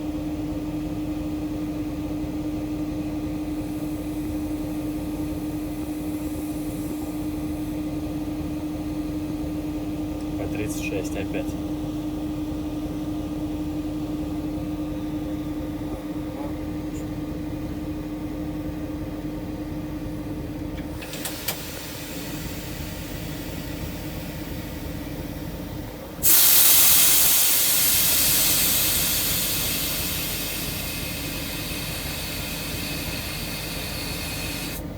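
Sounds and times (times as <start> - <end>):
locomotive low hum: 0.0 - 34.9
loud hiss: 26.2 - 34.8.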